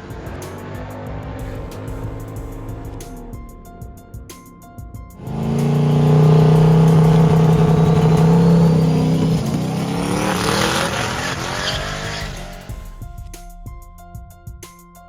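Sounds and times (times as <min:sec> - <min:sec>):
race car engine at high revs: 0:05.2 - 0:12.7.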